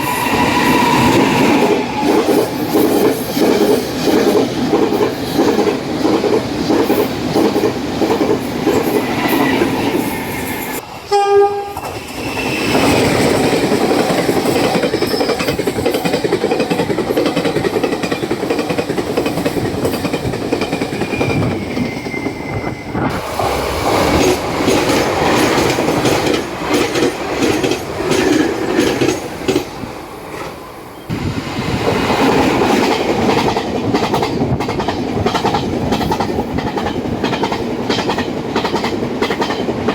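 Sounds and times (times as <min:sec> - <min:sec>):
trains passing at high speed: 0:00.0 - 0:39.9
train horn blast: 0:11.0 - 0:11.9.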